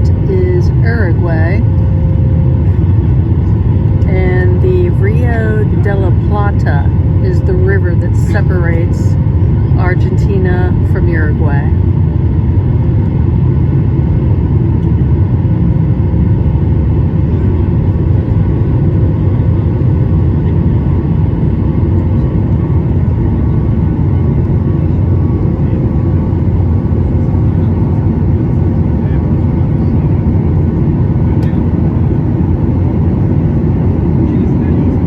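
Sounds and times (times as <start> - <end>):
faint steady hum: 0.0 - 13.8
aircraft engines rumbling: 0.0 - 35.0.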